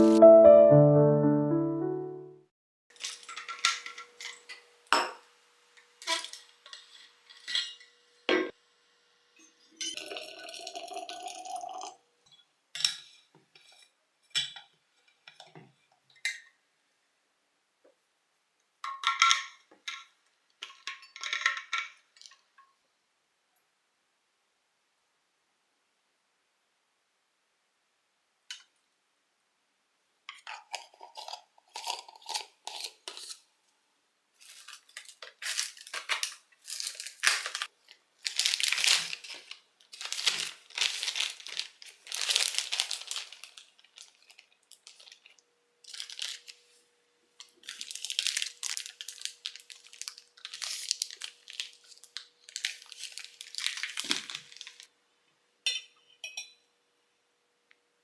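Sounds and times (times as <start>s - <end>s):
crinkling rustling handling: 34.4s - 46.8s, 47.4s - 54.9s.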